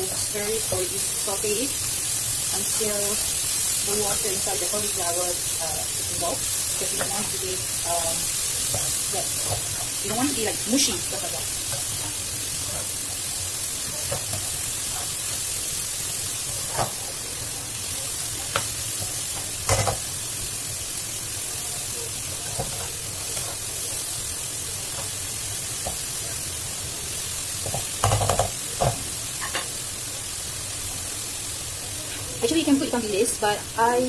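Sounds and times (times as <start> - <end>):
cauliflower rice sizzling in a wok: 0.0 - 34.0
knocks on wok: 27.7 - 29.6.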